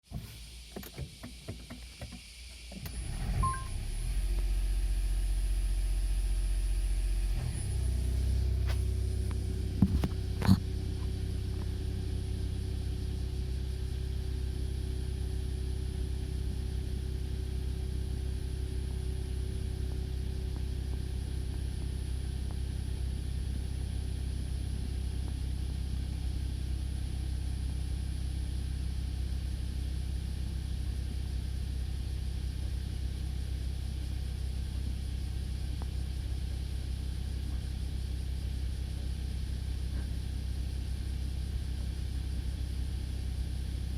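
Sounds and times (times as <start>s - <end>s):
car engine idling: 1.3s - 28.4s.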